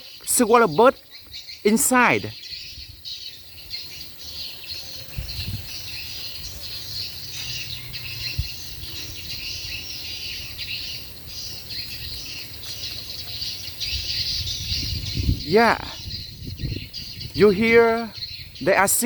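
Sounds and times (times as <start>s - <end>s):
swiftlets twittering: 1.6s - 2.4s.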